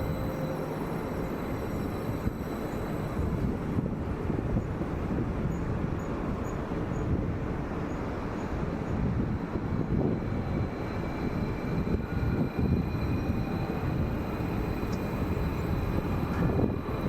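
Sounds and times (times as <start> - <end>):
faint high whines: 0.0 - 4.7, 8.8 - 17.0
train rumbling: 0.0 - 17.0.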